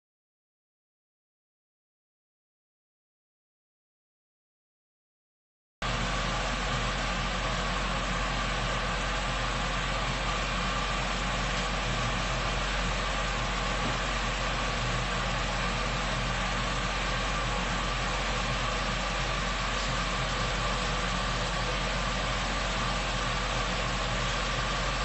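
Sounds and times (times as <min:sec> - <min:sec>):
mechanical hum with hiss: 0:05.8 - 0:25.0.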